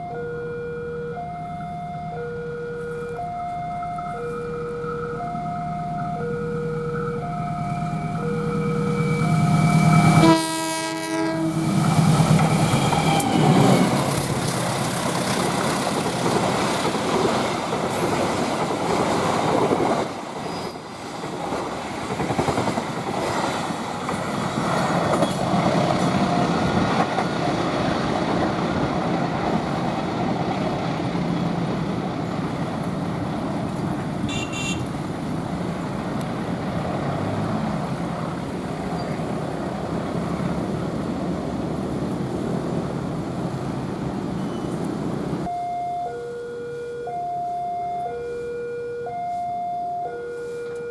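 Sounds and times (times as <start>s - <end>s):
train wheels rushing on rail: 7.6s - 45.5s
train horn blast: 8.7s - 11.8s, 12.5s - 14.0s, 34.2s - 35.0s.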